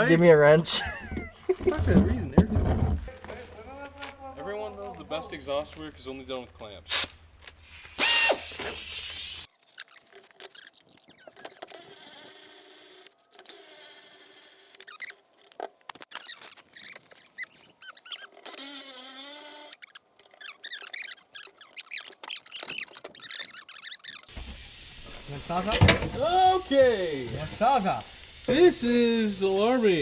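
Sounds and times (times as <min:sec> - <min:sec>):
metal squeaking on metal: 0:09.6 - 0:12.0, 0:14.8 - 0:24.3.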